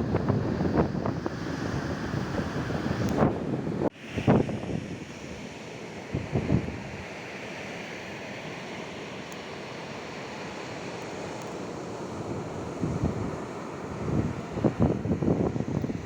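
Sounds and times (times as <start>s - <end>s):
wind gusting on microphone: 0.0s - 7.1s, 12.2s - 16.0s
sea surf washing in: 0.0s - 16.0s.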